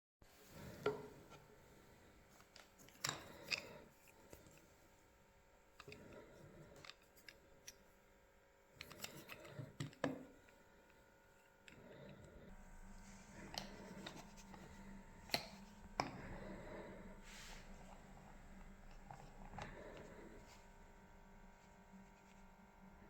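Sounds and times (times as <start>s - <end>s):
small tools clicking and knocking: 8.8s - 11.0s.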